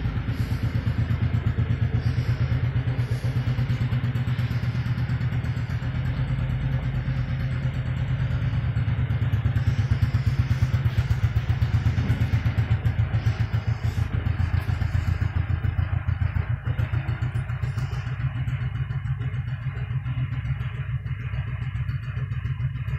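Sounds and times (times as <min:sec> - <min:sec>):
engine running with pulsing beat: 0:00.0 - 0:22.9.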